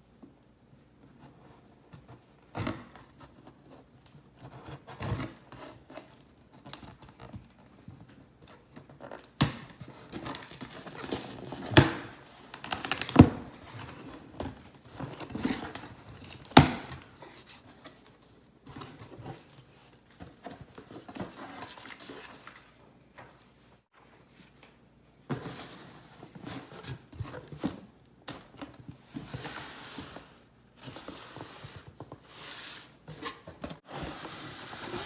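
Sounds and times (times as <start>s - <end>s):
paper crinkling and rustling: 5.0s - 23.6s.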